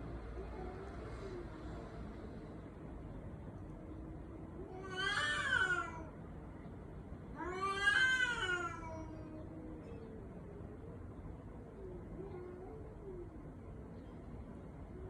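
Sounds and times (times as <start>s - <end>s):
cat meowing: 4.7s - 6.1s, 7.4s - 9.1s.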